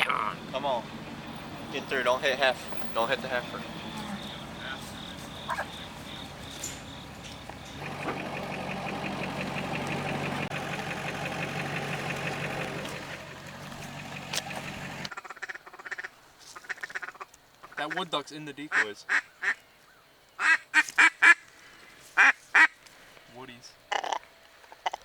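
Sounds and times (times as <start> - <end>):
vehicle engine running: 0.0 - 15.1
faint duck calls: 3.0 - 6.4, 15.1 - 22.8.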